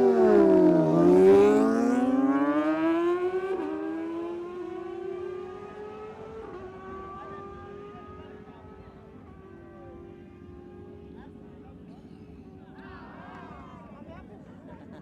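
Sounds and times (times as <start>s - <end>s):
motorcycle accelerating hard: 0.0s - 8.8s.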